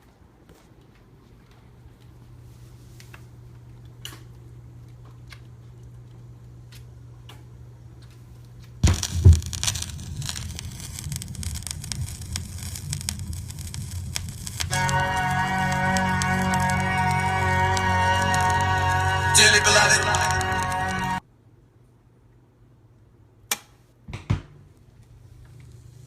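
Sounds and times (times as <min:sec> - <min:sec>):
turntable low hum: 0:01.8 - 0:21.2
vinyl crackle and pops: 0:03.0 - 0:21.2, 0:24.8 - 0:26.0
stylus thumps: 0:08.8 - 0:09.9
music from record: 0:14.4 - 0:21.2.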